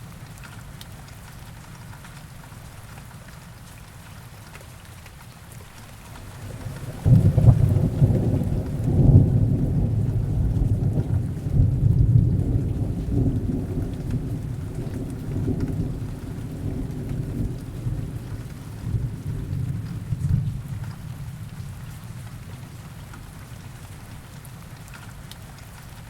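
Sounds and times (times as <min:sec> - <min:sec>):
heavy rain: 0:00.0 - 0:26.0
rolling thunder rumble: 0:06.2 - 0:21.6.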